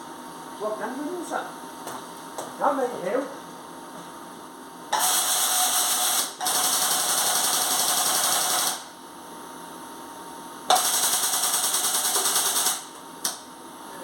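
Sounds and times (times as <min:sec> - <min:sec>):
air tool hissing buzz: 0:05.0 - 0:06.8.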